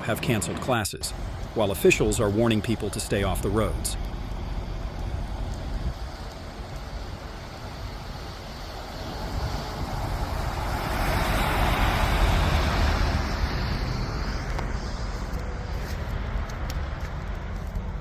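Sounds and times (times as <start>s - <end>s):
steady low rumble: 0.0s - 18.0s
vehicle passing: 7.5s - 18.0s.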